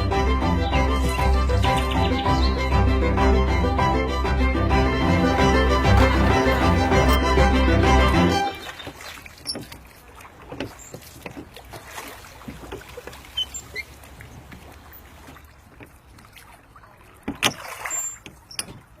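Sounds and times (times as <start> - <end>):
water lapping and sloshing: 5.6 - 19.0.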